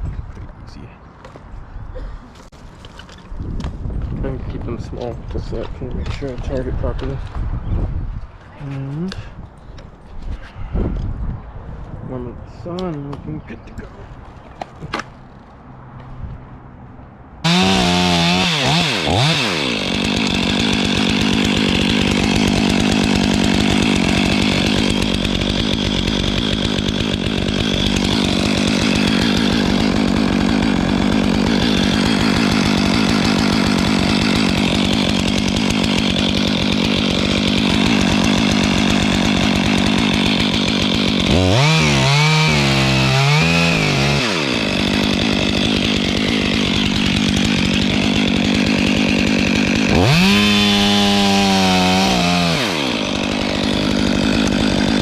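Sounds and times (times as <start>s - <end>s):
chainsaw cutting wood: 4.6s - 7.3s, 17.4s - 55.0s.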